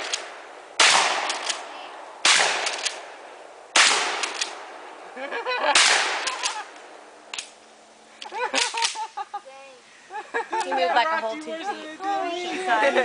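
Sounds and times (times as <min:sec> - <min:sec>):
gunshots with echo: 0:00.0 - 0:03.0, 0:03.8 - 0:04.7, 0:05.7 - 0:06.6.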